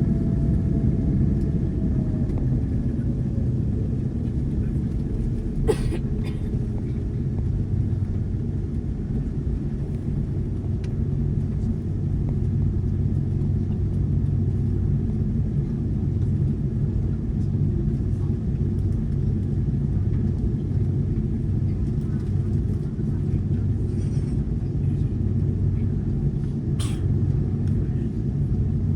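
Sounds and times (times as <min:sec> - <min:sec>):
airliner cabin rumble: 0:00.0 - 0:28.9
low steady hum: 0:00.0 - 0:28.9.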